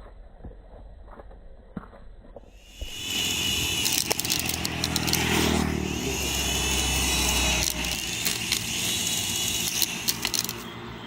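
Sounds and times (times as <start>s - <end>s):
toy helicopter rotor whirring: 2.6s - 11.0s
sharp clicks: 2.7s - 10.7s.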